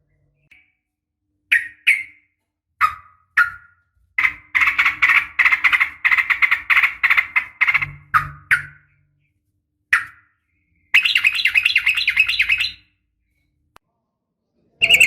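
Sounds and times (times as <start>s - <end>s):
bird calling with chattering notes: 10.9s - 12.9s.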